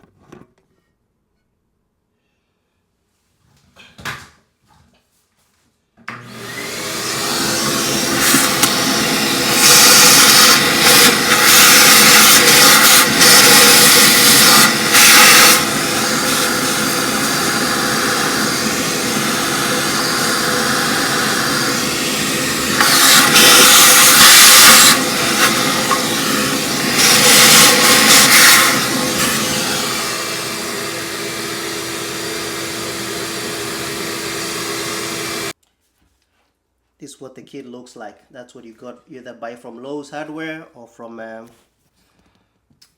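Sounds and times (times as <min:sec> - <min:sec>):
vacuum cleaner running: 0:06.1 - 0:35.6
vacuum cleaner switching on: 0:06.1 - 0:35.6.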